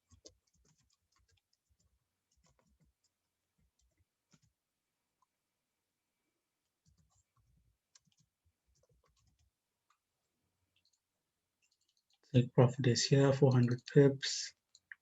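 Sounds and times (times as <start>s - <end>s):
computer mouse clicks: 7.9s - 10.0s.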